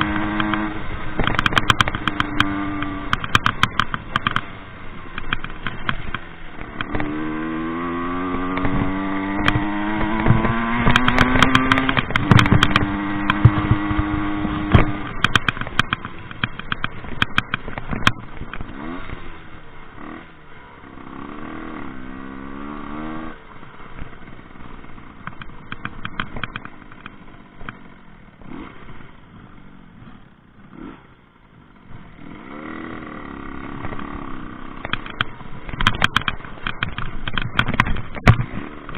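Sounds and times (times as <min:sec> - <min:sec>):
knocks and clatter: 0:00.0 - 0:04.5, 0:05.1 - 0:07.2, 0:08.5 - 0:18.7, 0:25.2 - 0:28.6, 0:34.7 - 0:38.9
two-stroke engine revving: 0:00.0 - 0:38.9.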